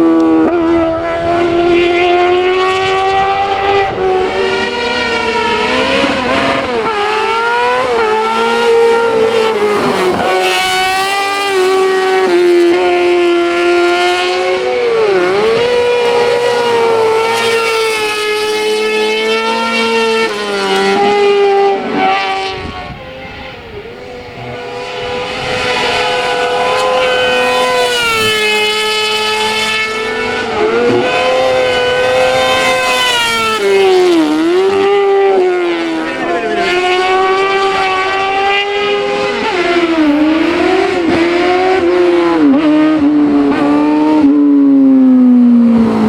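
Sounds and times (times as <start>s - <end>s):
race car engine at high revs: 0.0s - 46.0s.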